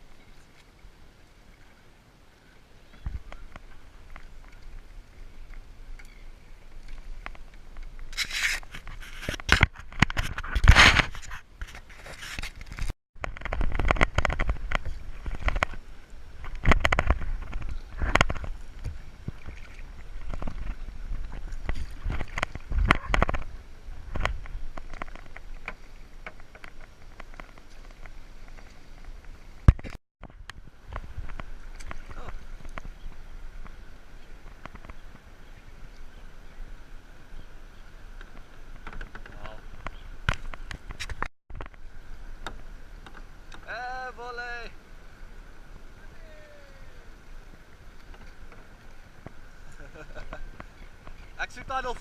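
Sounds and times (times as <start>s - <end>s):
scraping against kayak hull: 3.0s - 30.0s, 37.8s - 43.8s, 47.1s - 52.0s
water splashing: 13.3s - 52.0s.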